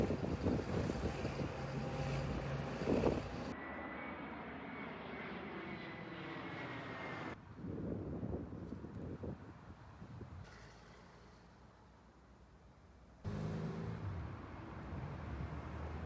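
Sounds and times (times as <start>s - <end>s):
vehicle engine hum: 0.0s - 3.6s, 13.3s - 16.0s.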